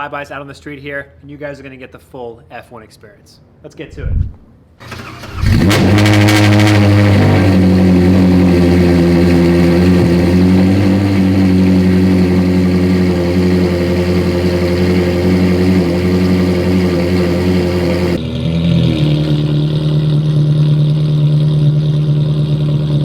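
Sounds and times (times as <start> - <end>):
car engine fast idle: 4.8 - 23.0.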